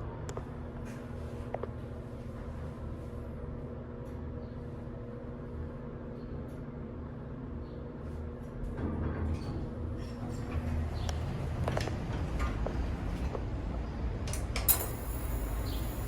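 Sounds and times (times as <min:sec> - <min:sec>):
elevator pump humming: 0:14.7 - 0:16.0.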